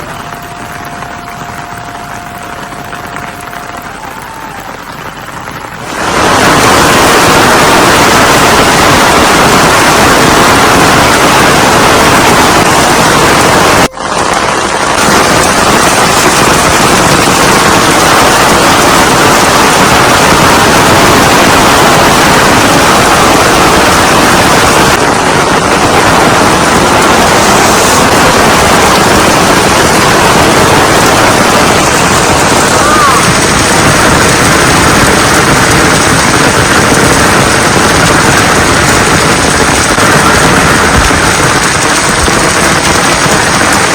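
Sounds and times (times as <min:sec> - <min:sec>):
heavy rain rushing: 0:00.0 - 0:43.9.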